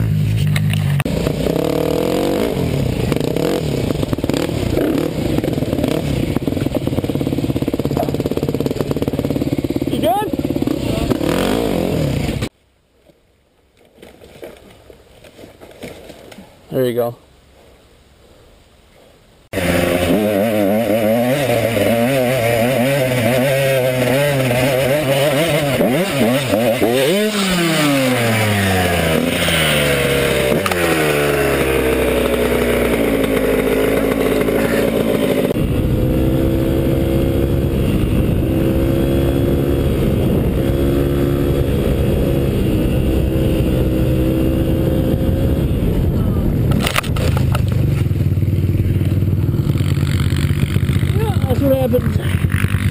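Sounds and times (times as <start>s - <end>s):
dirt bike engine revving: 0.0s - 12.5s, 19.5s - 52.9s.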